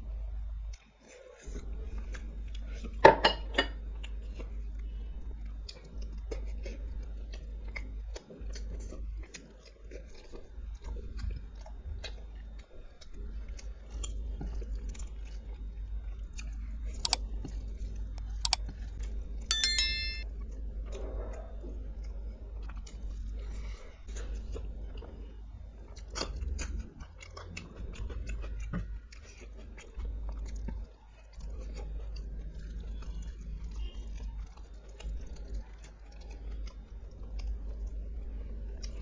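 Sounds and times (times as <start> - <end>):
chewing and crunching food: 24.2 - 39.0.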